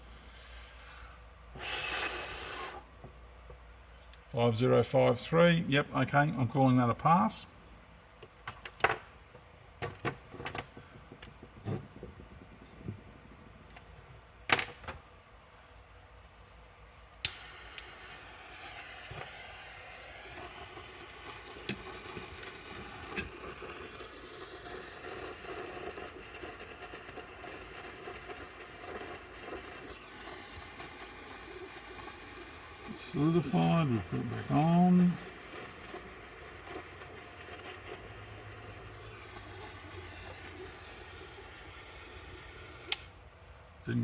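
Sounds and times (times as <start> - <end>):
gas torch hissing: 1.5 - 3.0, 17.2 - 43.2.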